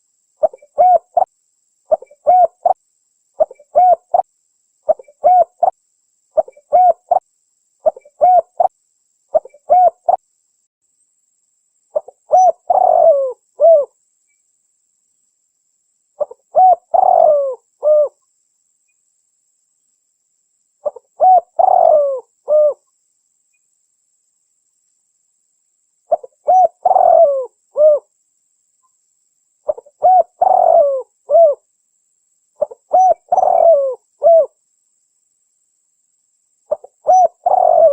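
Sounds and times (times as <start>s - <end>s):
dove cooing: 0.4s - 1.3s, 1.9s - 2.8s, 3.4s - 4.3s, 4.9s - 5.8s, 6.4s - 7.2s, 7.8s - 8.7s, 9.3s - 10.2s, 12.0s - 14.0s, 16.2s - 18.2s, 20.8s - 22.8s, 26.1s - 28.1s, 29.7s - 31.6s, 32.6s - 34.6s, 36.7s - 37.9s.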